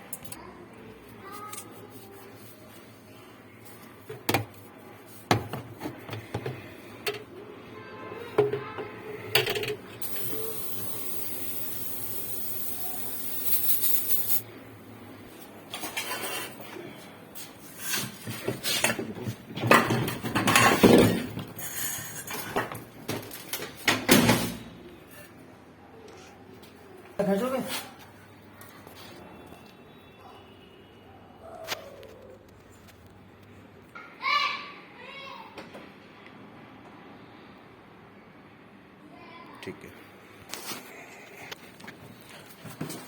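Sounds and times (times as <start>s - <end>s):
steady hiss: 10.0s - 14.5s.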